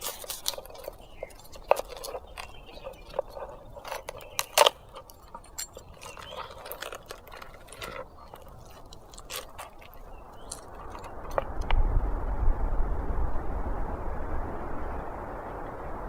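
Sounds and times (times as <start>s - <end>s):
small hard objects clicking: 0.0s - 11.8s.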